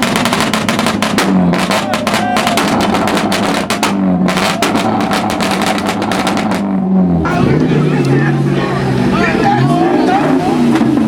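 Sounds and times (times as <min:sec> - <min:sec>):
exhaust pops and crackles: 0:00.0 - 0:08.3, 0:10.0 - 0:11.0
car engine revving: 0:00.0 - 0:11.0.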